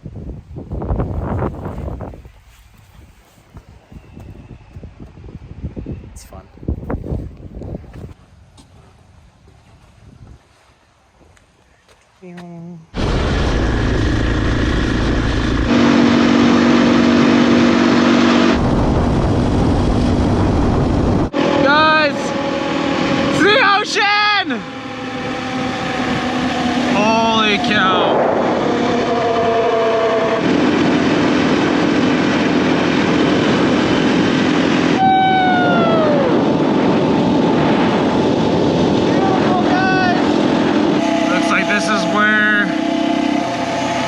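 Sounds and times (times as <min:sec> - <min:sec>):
wind noise: 0:00.0 - 0:08.2, 0:08.9 - 0:10.7, 0:12.9 - 0:44.0
motorcycle engine running: 0:13.0 - 0:20.3.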